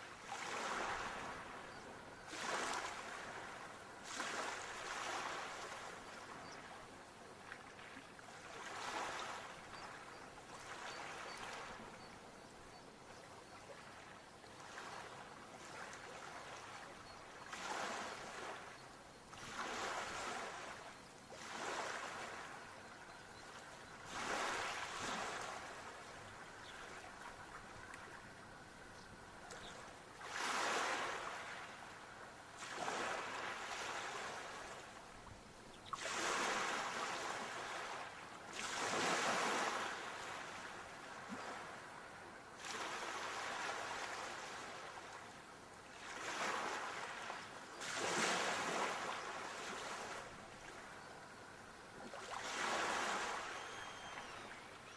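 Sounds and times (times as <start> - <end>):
sea waves breaking on shore: 0.0 - 12.0, 13.4 - 54.9.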